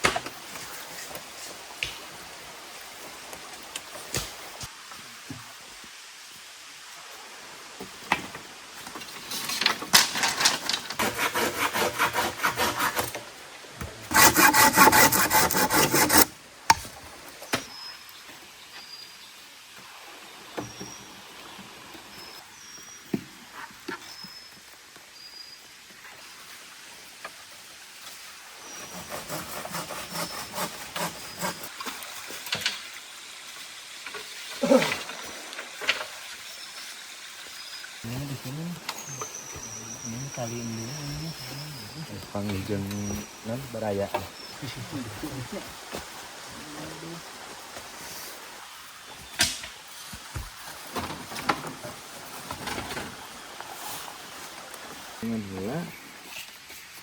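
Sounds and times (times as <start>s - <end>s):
rain hiss: 0.0s - 11.0s, 16.2s - 28.9s, 31.4s - 57.0s
hand saw cutting wood: 10.9s - 13.2s, 14.0s - 16.4s, 28.7s - 31.8s
knocks and rustles: 49.2s - 53.3s.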